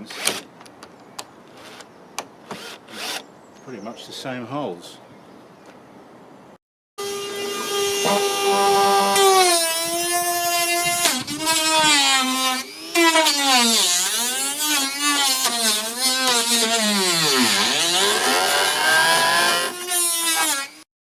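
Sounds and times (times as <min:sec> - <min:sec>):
cordless drill driving screws: 0:02.5 - 0:03.2.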